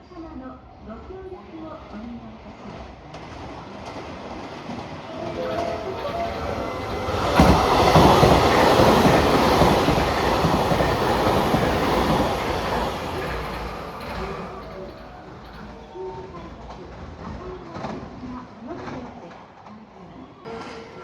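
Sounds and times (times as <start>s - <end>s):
train passing close by: 2.7s - 18.5s.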